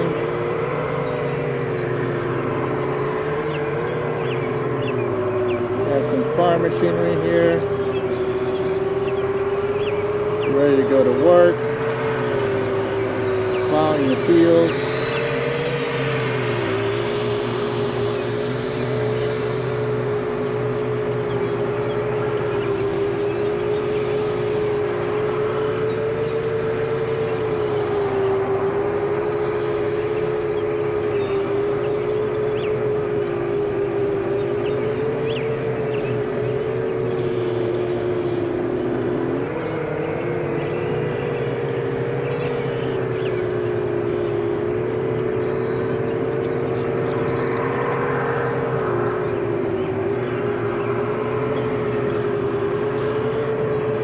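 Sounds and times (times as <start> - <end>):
drone motors whining: 0.0 - 54.0.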